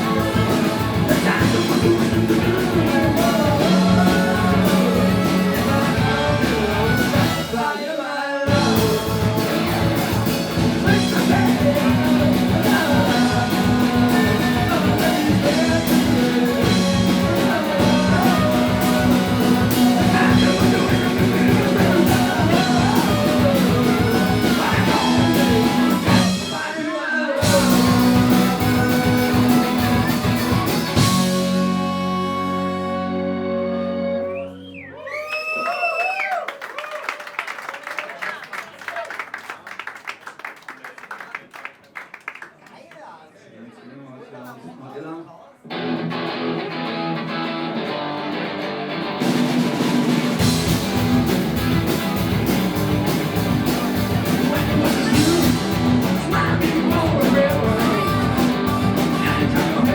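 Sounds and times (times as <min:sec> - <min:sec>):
bass guitar: 0:00.0 - 0:07.7, 0:08.5 - 0:26.8, 0:27.4 - 0:35.0, 0:45.7 - 0:59.9
electric guitar: 0:00.0 - 0:07.7, 0:08.5 - 0:26.8, 0:27.4 - 0:34.6, 0:45.6 - 0:59.9
person singing lead vocal: 0:00.0 - 0:33.0, 0:54.2 - 0:59.9
drums: 0:00.0 - 0:40.3, 0:45.7 - 0:59.9.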